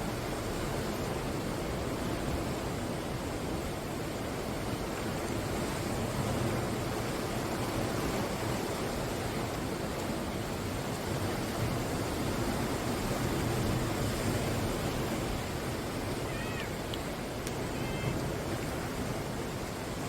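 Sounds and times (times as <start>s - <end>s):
sea waves washing onto shore: 0.0s - 20.0s
faint short high calls: 16.2s - 16.8s.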